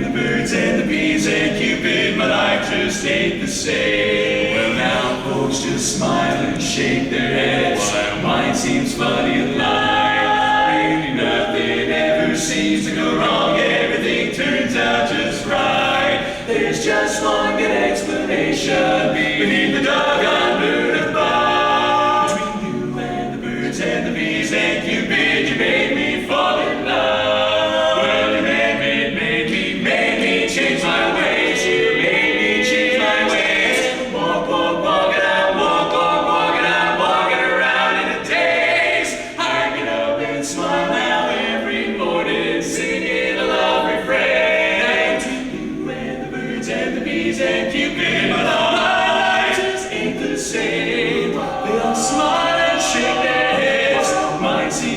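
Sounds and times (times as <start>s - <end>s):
barbershop quartet singing: 0.0s - 54.9s.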